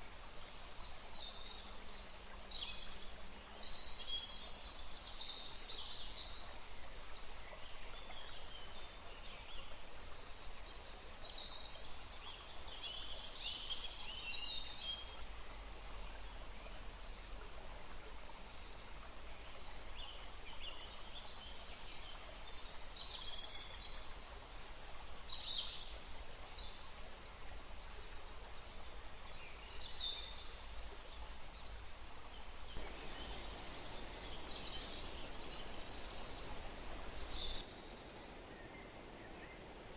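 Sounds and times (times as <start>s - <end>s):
running water: 0.0s - 39.9s
wind in the trees: 0.0s - 39.9s
birds chirping and trilling: 32.7s - 39.9s.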